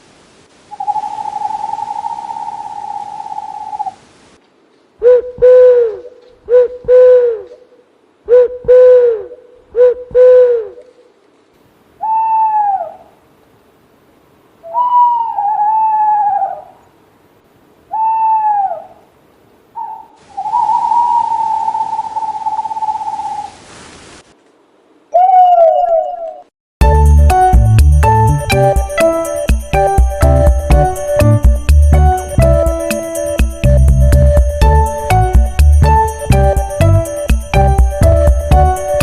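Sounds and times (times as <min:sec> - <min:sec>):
owls hooting: 0:00.7 - 0:04.0, 0:05.0 - 0:10.9, 0:12.0 - 0:13.2, 0:14.6 - 0:16.9, 0:17.9 - 0:19.1, 0:19.7 - 0:23.6, 0:25.1 - 0:26.5.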